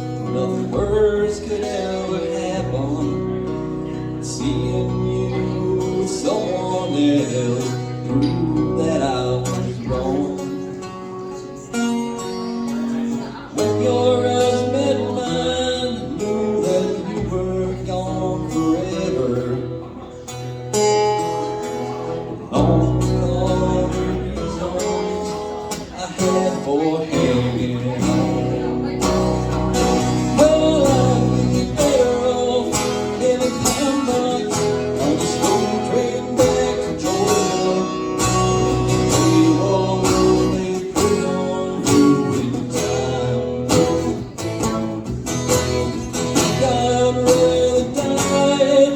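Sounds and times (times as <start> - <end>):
man singing: 0.0 - 20.2, 21.9 - 48.9
guitar: 0.0 - 48.9
bass line: 22.5 - 48.9.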